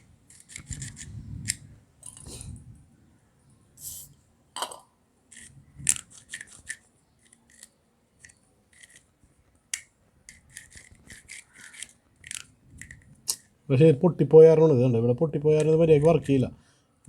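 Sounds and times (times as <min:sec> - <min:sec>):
small metal and plastic parts scraping: 0:00.0 - 0:02.6, 0:05.3 - 0:13.5.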